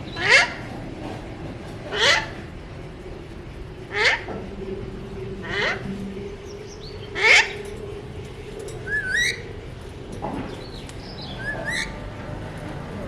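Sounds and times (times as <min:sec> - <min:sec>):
faint steady hum: 0:00.0 - 0:13.0
parakeet squawking: 0:00.1 - 0:00.6, 0:01.9 - 0:02.4, 0:03.9 - 0:04.3, 0:05.4 - 0:05.9, 0:06.8 - 0:07.6, 0:11.2 - 0:12.0
parakeet whistling: 0:08.8 - 0:09.4.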